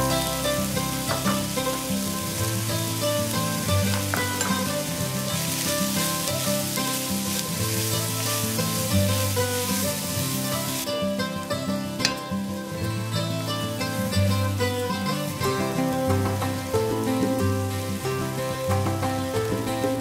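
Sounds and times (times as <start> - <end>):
background music: 0.0 - 20.0
chicken sizzling in a pan: 0.0 - 20.0
wooden spoon stirring: 1.0 - 10.9.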